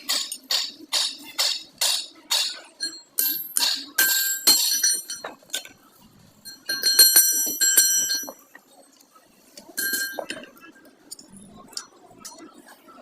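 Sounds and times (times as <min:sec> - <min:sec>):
hammer striking ringing metal: 0:06.5 - 0:08.4.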